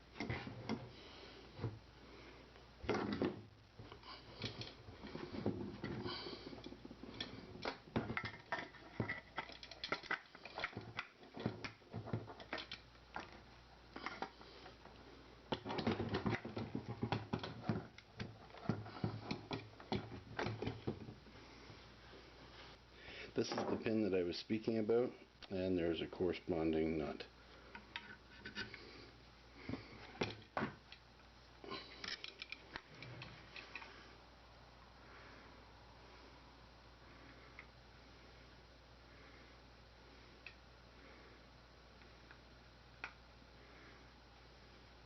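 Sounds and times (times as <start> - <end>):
metal parts clicking and rattling: 4.3 - 13.4, 31.9 - 33.9.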